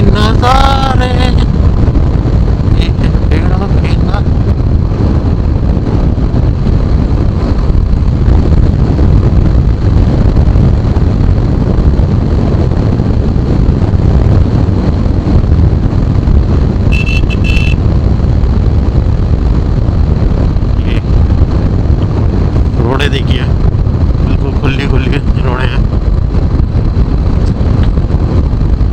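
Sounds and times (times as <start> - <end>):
wind rushing over microphone: 0.0 - 28.9
motorcycle engine: 4.2 - 24.3
horn beeping: 16.9 - 17.8.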